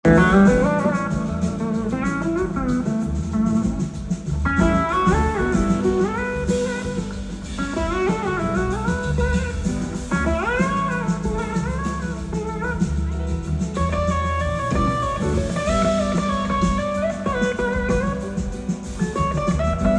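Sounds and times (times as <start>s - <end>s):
bass guitar: 0.0s - 19.9s
drums: 0.0s - 19.9s
electric slide guitar melody: 0.0s - 19.9s.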